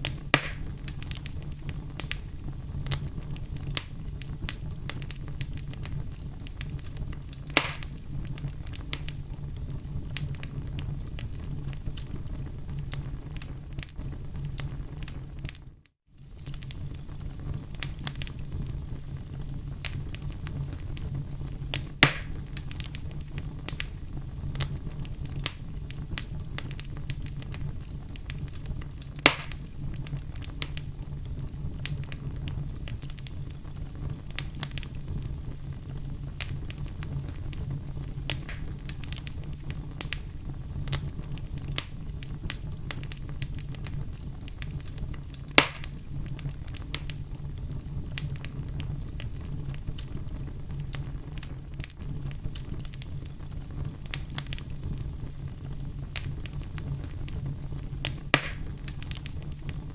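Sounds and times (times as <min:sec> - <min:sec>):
fire sharp pops: 0:00.0 - 0:15.6, 0:16.2 - 0:59.9
low rumble of flames: 0:00.0 - 0:59.9
wood fire crackling: 0:00.0 - 0:59.9.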